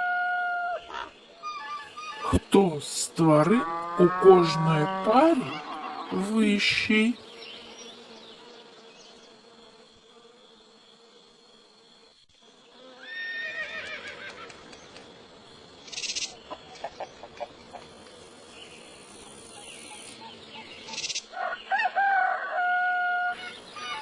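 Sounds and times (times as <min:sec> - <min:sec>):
horse whinnying: 0:03.6 - 0:06.2, 0:13.1 - 0:14.2.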